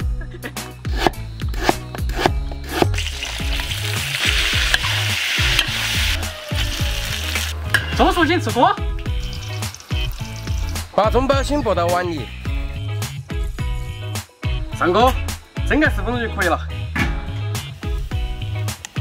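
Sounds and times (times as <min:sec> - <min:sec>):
hot oil sizzling: 0:02.7 - 0:08.4, 0:09.0 - 0:11.7.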